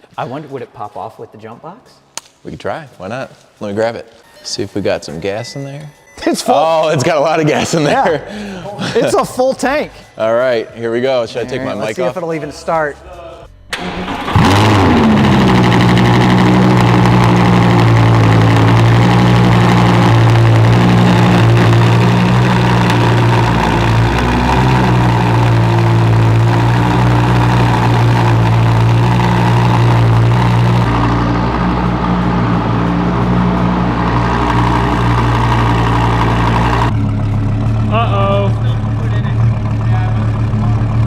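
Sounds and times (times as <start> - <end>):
car engine idling: 13.6 - 41.0.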